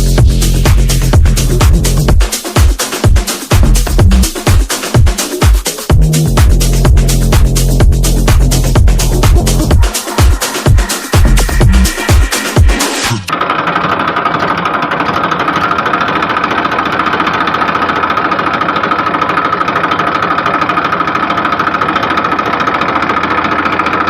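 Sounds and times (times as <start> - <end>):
tractor engine chugging: 13.9 - 24.0.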